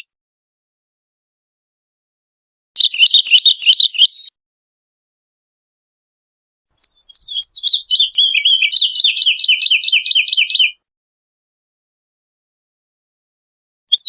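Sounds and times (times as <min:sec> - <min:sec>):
woodlark singing: 0:02.8 - 0:04.3, 0:06.8 - 0:10.8.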